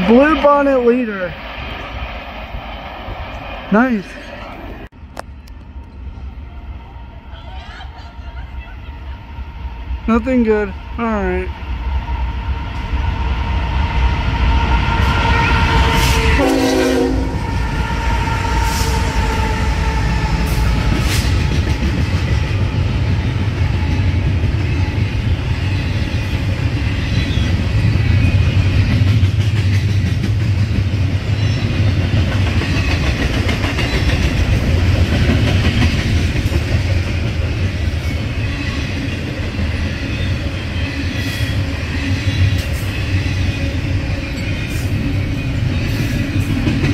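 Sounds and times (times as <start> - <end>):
freight train rumbling: 0.0 - 46.9
train horn: 14.7 - 20.8
wheels clacking over rail joints: 28.6 - 38.4.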